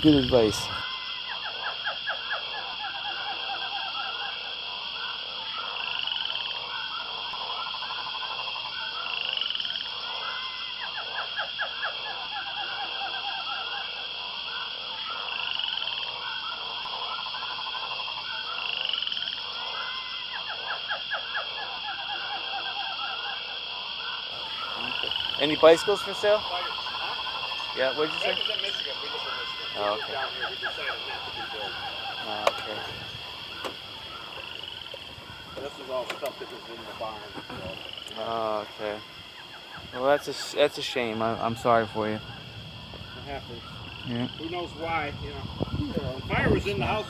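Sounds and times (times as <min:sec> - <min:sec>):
constant high buzz: 0:00.0 - 0:11.2, 0:23.4 - 0:47.0
frogs trilling: 0:00.0 - 0:47.0.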